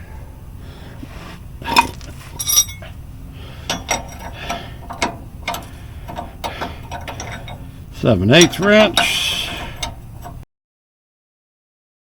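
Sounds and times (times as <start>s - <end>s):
light metal clinks: 1.7s - 2.9s
ratchet wrench clicking: 3.7s - 7.7s, 8.3s - 10.4s.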